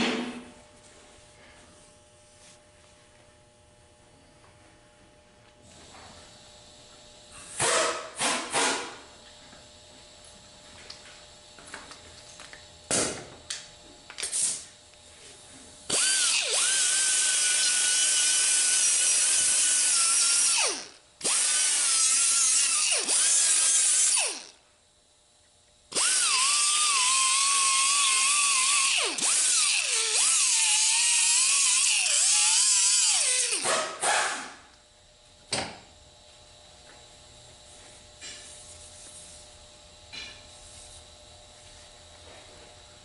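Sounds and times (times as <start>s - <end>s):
handheld power tool whining: 15.9s - 24.6s, 25.9s - 34.6s.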